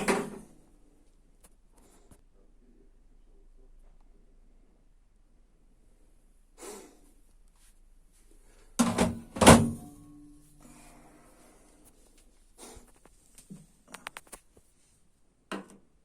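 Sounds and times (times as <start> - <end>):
knocks on washing machine casing: 8.8 - 9.9.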